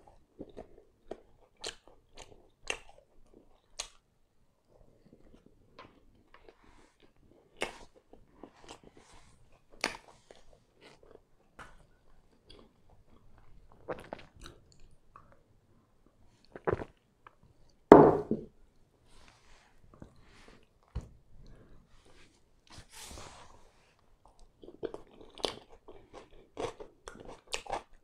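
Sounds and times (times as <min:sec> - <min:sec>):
close chewing mouth sounds: 0:00.0 - 0:04.0, 0:05.0 - 0:15.4, 0:24.2 - 0:28.0
glass being picked up: 0:17.9 - 0:18.5.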